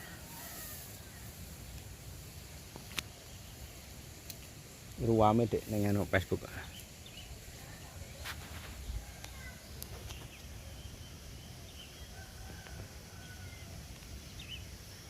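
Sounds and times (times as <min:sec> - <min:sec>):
faint bird chirps: 0:06.5 - 0:15.0.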